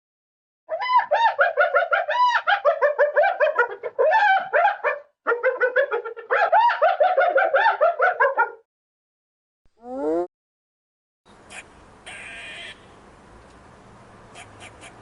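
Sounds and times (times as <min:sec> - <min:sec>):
animal's rapid high-pitched calls: 0:11.5 - 0:12.9, 0:14.3 - 0:15.0.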